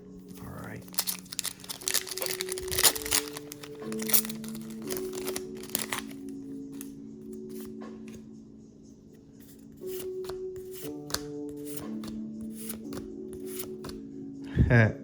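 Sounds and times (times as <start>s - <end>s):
background music with held notes: 0.0s - 15.0s
foil wrapper crinkling and tearing: 0.8s - 6.3s.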